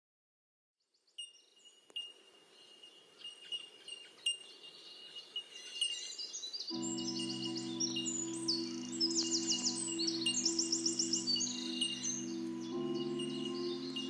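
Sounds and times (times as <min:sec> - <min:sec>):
birds chirping: 0:01.4 - 0:14.0
music with low notes: 0:06.7 - 0:14.0
high chimes ringing: 0:06.8 - 0:14.0.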